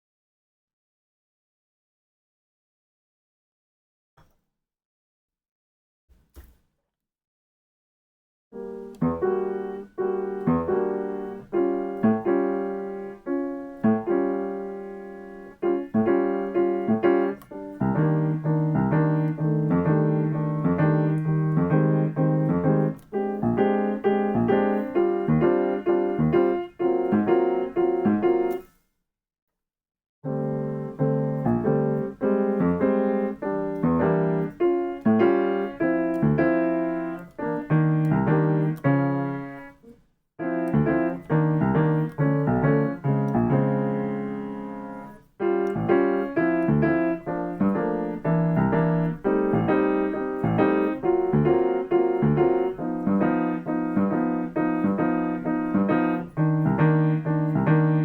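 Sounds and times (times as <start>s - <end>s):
piano jazz chords: 8.6s - 28.7s, 30.2s - 58.0s.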